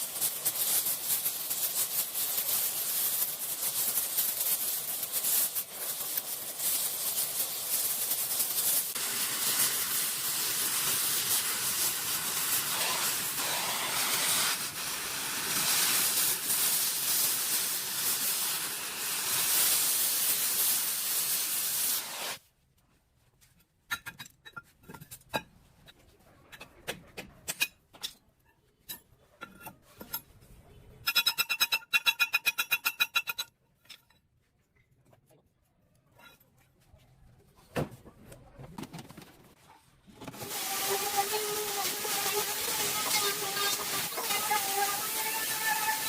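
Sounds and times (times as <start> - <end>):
spray hissing: 0.0 - 22.4, 40.4 - 46.0.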